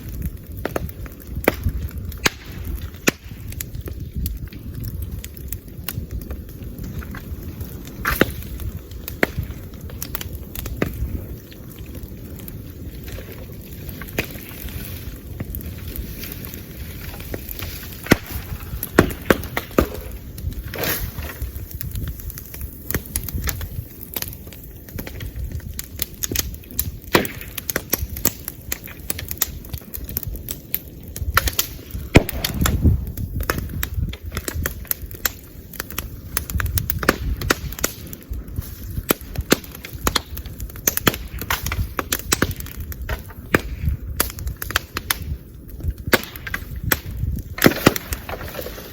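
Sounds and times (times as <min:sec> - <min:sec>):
bonfire crackling: 0:00.0 - 0:48.9
sharp pops: 0:31.4 - 0:35.4
bamboo bursting with loud bang: 0:32.1 - 0:33.0.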